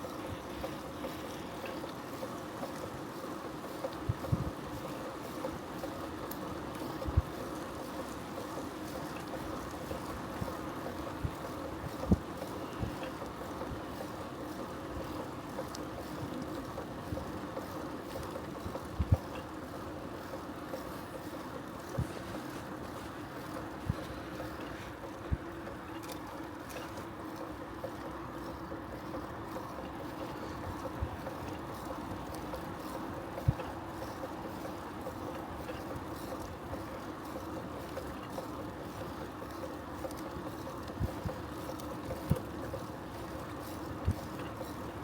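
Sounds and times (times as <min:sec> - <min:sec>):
bicycle tyres rolling hum: 0:00.0 - 0:45.0.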